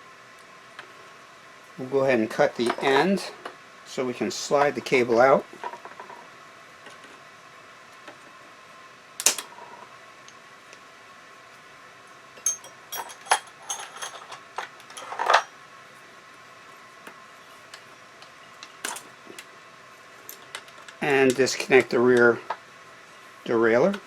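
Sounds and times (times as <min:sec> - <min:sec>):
light metal clicks and rattles: 0:12.5 - 0:15.5.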